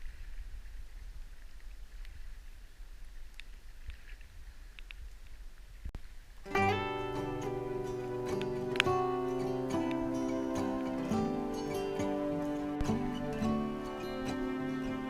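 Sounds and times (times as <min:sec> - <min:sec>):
acoustic guitar music: 0:06.4 - 0:15.0.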